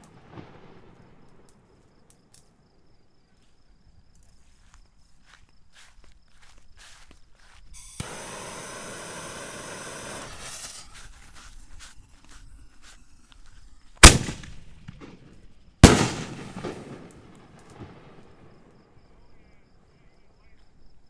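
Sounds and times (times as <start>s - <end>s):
loud firework bangs echoing: 0.0s - 1.7s, 7.8s - 11.9s, 14.0s - 18.7s
firework rushing hiss: 7.7s - 14.9s, 15.8s - 17.0s.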